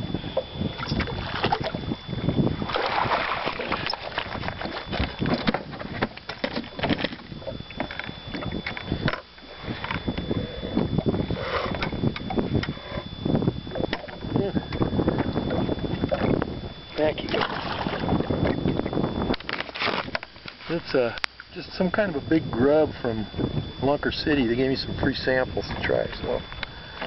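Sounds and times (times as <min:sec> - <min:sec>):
thin high whine: 0:00.0 - 0:27.0
water sloshing around boat: 0:00.0 - 0:27.0
wind on microphone: 0:00.0 - 0:27.0
knocks and clatter in boat: 0:00.4 - 0:01.9, 0:02.6 - 0:11.2, 0:11.8 - 0:12.8, 0:13.4 - 0:20.6.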